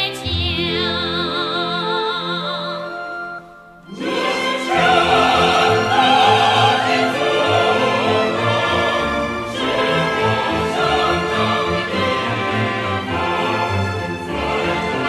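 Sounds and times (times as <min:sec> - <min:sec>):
orchestra playing sustained chords: 0:03.9 - 0:15.0.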